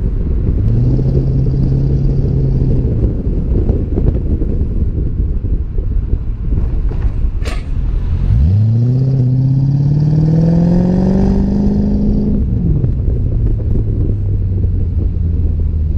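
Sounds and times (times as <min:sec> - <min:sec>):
wind rumbling on microphone: 0:00.0 - 0:15.9
car engine revving: 0:08.0 - 0:15.6.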